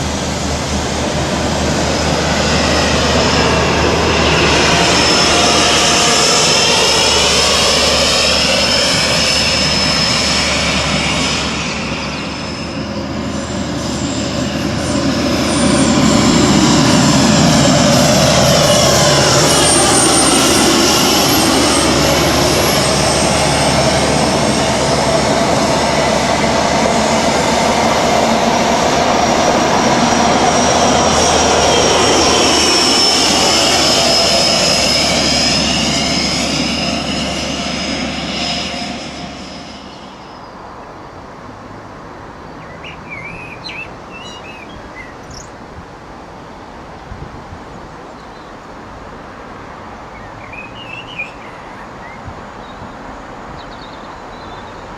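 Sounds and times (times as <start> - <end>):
diesel train passing: 0.0 - 54.9
birds chirping: 42.4 - 45.6, 50.0 - 53.0.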